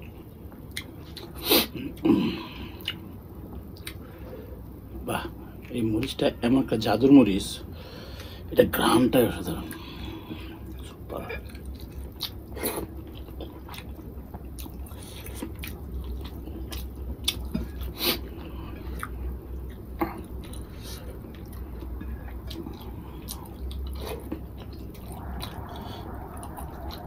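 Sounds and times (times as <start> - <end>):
person chewing food: 0.1 - 4.2, 11.4 - 27.0.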